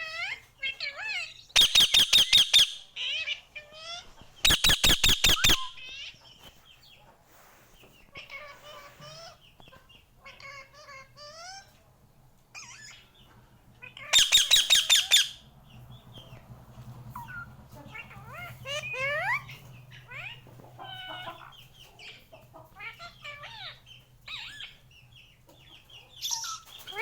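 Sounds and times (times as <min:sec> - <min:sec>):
parakeet chattering calls: 0:00.1 - 0:03.8, 0:04.4 - 0:06.2, 0:13.8 - 0:15.4, 0:17.2 - 0:22.2, 0:22.8 - 0:24.8
parakeet screeching: 0:12.6 - 0:13.0, 0:13.9 - 0:15.4, 0:17.3 - 0:21.4.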